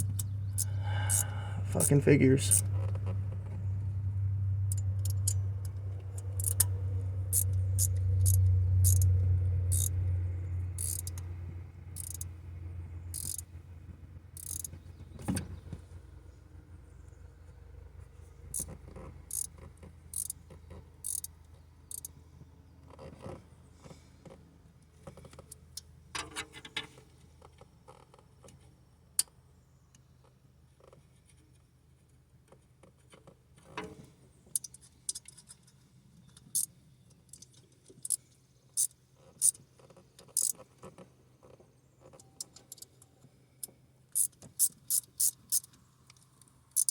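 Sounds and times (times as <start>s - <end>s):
low hum: 0.0s - 18.0s
hand tools clicking on metal: 13.2s - 13.4s.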